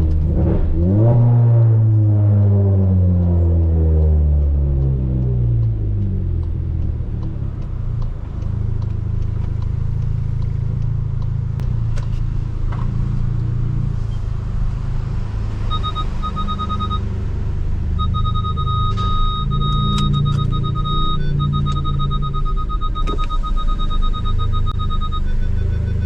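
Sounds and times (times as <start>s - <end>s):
car engine rumbling: 0.0s - 26.0s
high electronic beeps: 15.7s - 17.1s, 17.9s - 26.0s.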